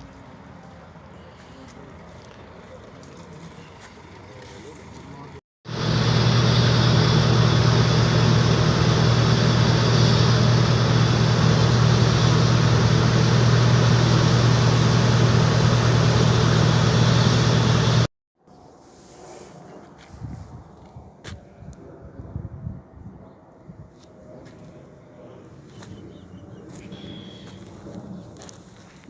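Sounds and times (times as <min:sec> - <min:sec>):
diesel engine droning: 0:00.0 - 0:18.1.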